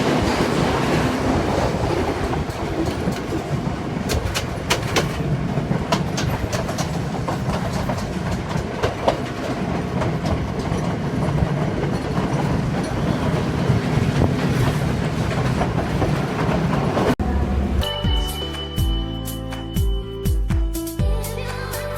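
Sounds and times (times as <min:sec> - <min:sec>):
train wheels clicking on rail joints: 0:00.0 - 0:17.2
train rumble and drone: 0:00.0 - 0:19.0.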